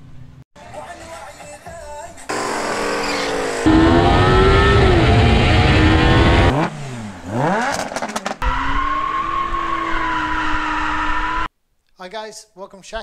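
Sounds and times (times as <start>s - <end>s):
car engine revving: 2.3s - 11.5s.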